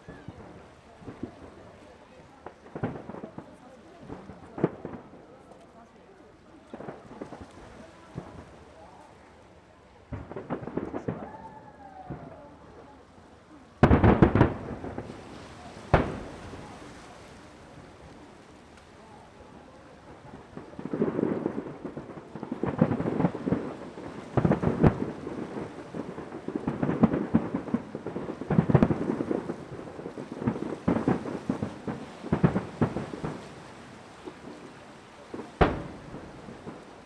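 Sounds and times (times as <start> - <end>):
fireworks bursting: 0.0 - 5.4, 6.7 - 8.8, 10.0 - 12.6, 13.8 - 37.0
sharp firework bang: 13.8 - 16.8, 35.5 - 36.8.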